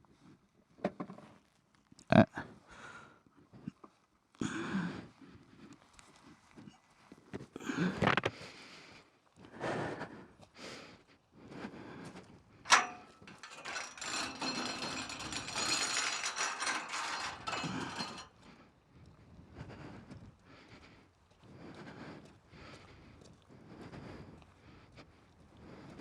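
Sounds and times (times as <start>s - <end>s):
metallic latch clank: 12.7s - 18.2s
metal gate rattling: 12.7s - 18.5s.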